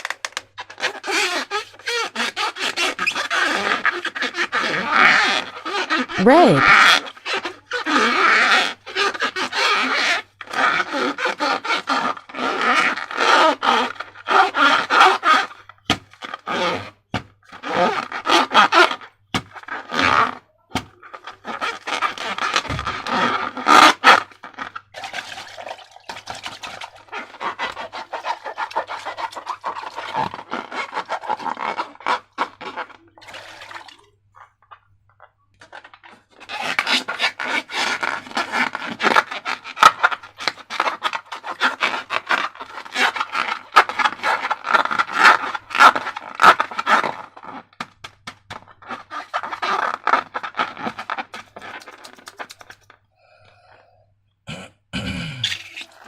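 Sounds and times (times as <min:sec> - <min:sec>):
hands squishing slime balloon: 0:36.4 - 0:53.0.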